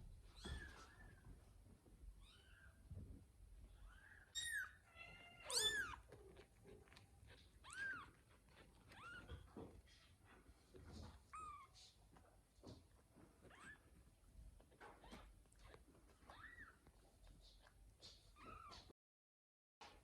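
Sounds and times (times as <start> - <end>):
kittens mewing: 4.3 - 12.0.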